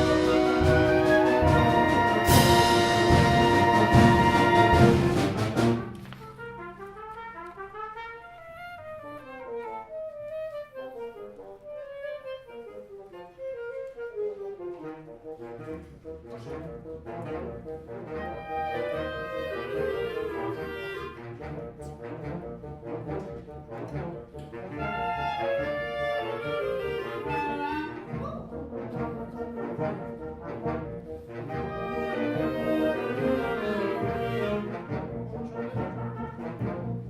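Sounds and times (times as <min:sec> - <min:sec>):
wind band playing: 0:00.0 - 0:37.0.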